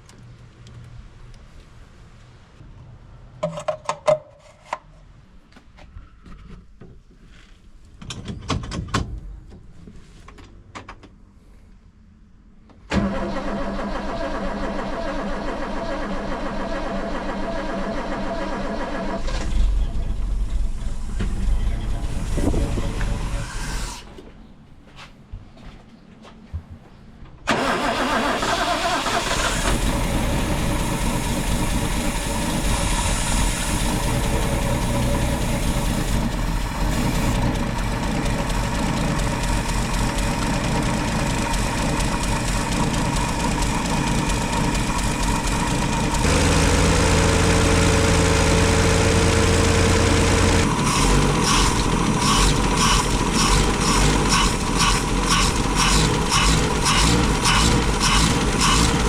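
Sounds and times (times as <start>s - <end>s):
car engine starting and idling: 12.9s - 24.0s, 27.5s - 59.0s.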